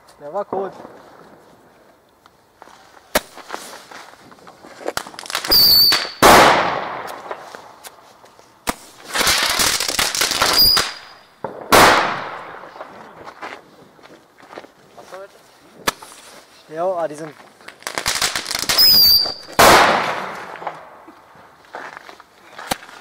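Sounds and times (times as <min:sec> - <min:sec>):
firecrackers crackling pops: 0:00.4 - 0:13.7, 0:15.8 - 0:16.3, 0:17.2 - 0:23.0
loud firework bangs: 0:04.9 - 0:07.8, 0:08.6 - 0:13.2, 0:17.8 - 0:21.1.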